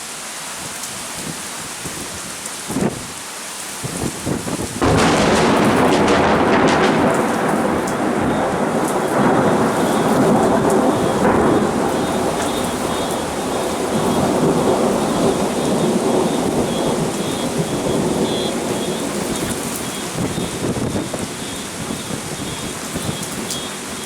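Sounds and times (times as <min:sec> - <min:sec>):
heavy rain downpour: 0:00.0 - 0:24.0
thunder rolling: 0:04.6 - 0:23.5.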